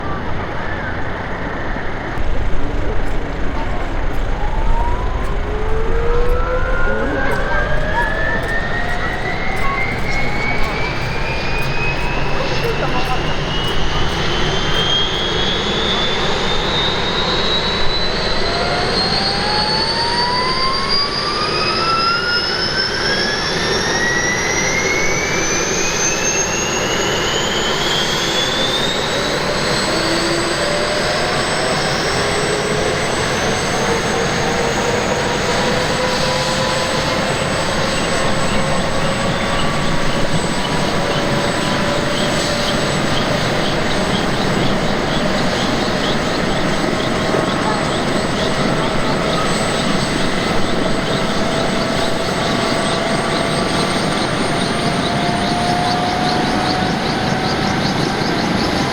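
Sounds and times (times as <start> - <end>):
helicopter turbine whine: 0.0 - 58.9.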